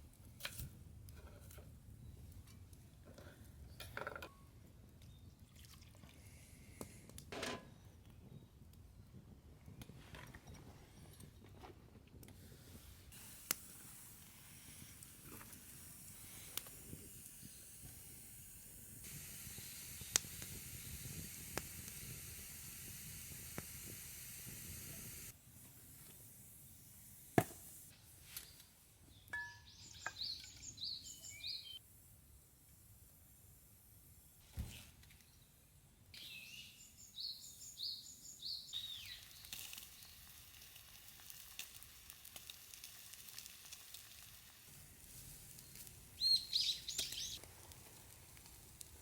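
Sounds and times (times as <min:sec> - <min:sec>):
campfire crackling and popping: 0:12.1 - 0:27.9, 0:38.7 - 0:49.0
steady hiss: 0:12.4 - 0:29.0, 0:36.2 - 0:49.0
bird chirping: 0:29.1 - 0:31.8, 0:36.2 - 0:40.1, 0:46.2 - 0:47.4.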